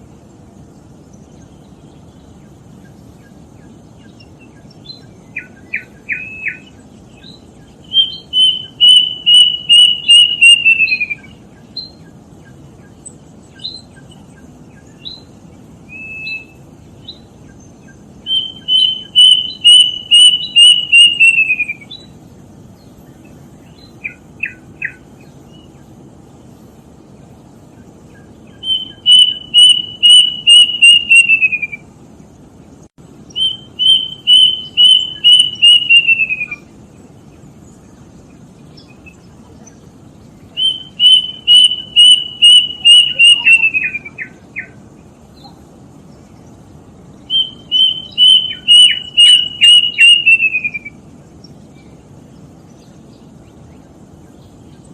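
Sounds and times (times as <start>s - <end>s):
steady low hiss: 0.0s - 54.9s
cuckoo whistled notes: 7.9s - 11.3s, 28.6s - 31.8s, 33.4s - 36.6s, 40.6s - 44.7s, 47.3s - 51.0s.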